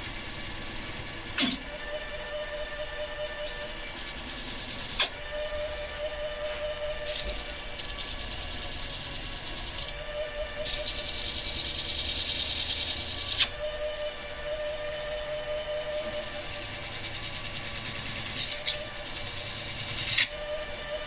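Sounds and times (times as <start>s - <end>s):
workshop machine whine: 0.0s - 21.0s.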